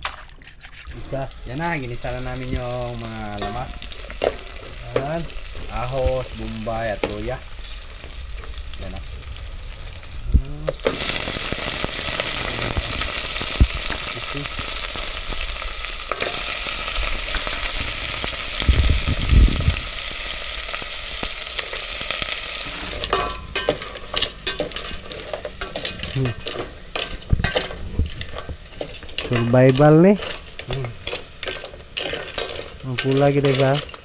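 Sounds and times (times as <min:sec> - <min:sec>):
food sizzling in hot oil: 0:00.8 - 0:34.0
ladle scraping against pot: 0:22.7 - 0:34.0.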